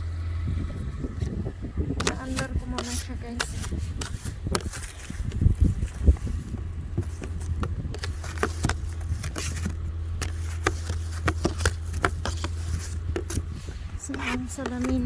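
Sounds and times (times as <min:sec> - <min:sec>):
low hum from car: 0:00.0 - 0:15.0
snow brush scraping windshield: 0:02.0 - 0:15.0.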